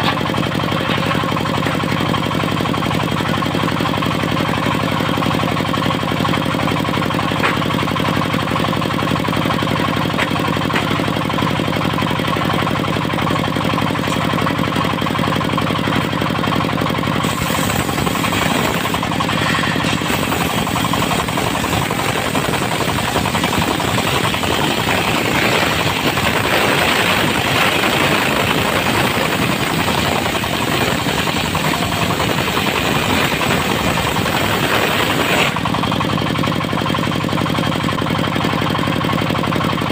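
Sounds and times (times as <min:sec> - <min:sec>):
diesel engine running: 0:00.0 - 0:39.9
circular saw cutting wood: 0:17.2 - 0:35.9.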